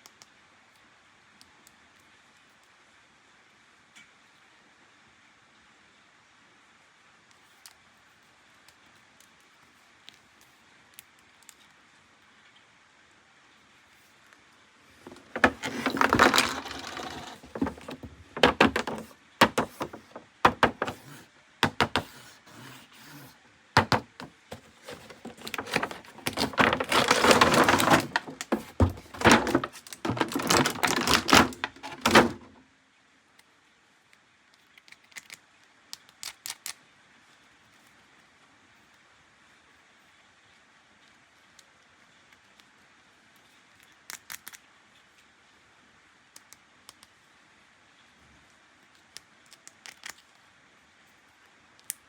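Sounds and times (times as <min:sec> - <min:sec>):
plastic toys clicking and knocking: 0:15.0 - 0:22.3, 0:23.8 - 0:32.5, 0:49.5 - 0:50.3.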